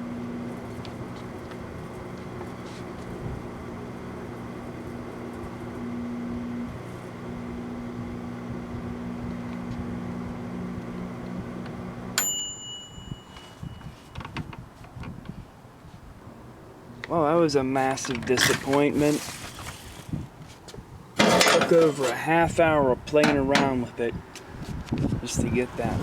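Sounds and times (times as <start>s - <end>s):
microwave oven humming: 0.0s - 13.9s
microwave bell ding: 12.2s - 14.2s.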